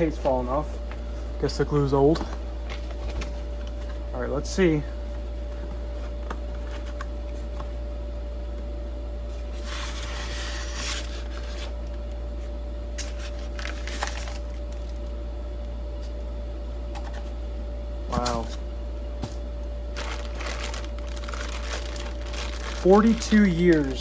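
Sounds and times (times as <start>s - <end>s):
low hum: 0.0s - 24.0s
cardboard box rustling: 19.2s - 24.0s
packaging clicks: 20.0s - 24.0s.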